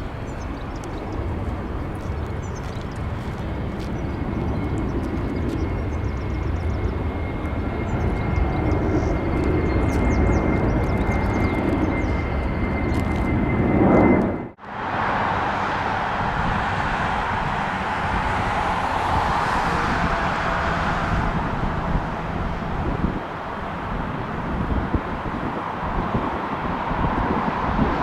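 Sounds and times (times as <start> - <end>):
jet engines with high whine: 0.0 - 28.0
rushing noise: 14.6 - 24.9.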